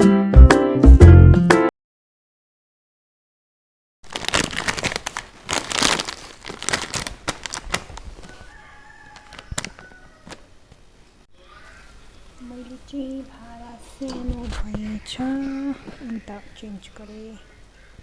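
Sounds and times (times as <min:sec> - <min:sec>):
plastic packaging crinkling: 0:04.0 - 0:10.5.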